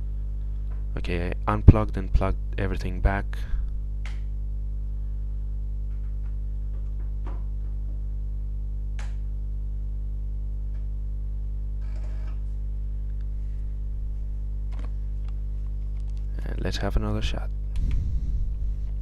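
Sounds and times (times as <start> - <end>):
electrical mains hum: 0.0 - 19.0
faint clicks and rustles: 14.7 - 16.8.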